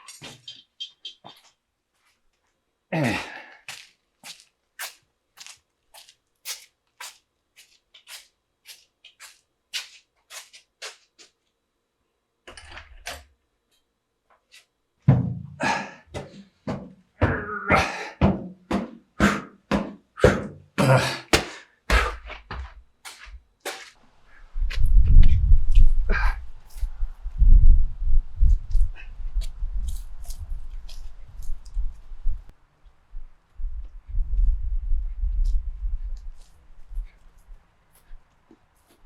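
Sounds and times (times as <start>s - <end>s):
footsteps walking: 1.2s - 2.6s, 3.7s - 11.5s, 16.1s - 17.4s, 18.2s - 20.0s, 21.4s - 27.3s, 28.5s - 32.6s, 33.2s - 39.0s
heavy thuds: 15.1s - 23.4s.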